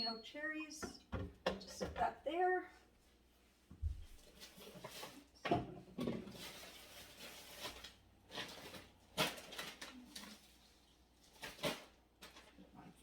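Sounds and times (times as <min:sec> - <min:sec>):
food containers knocking and rustling: 0:03.7 - 0:09.9.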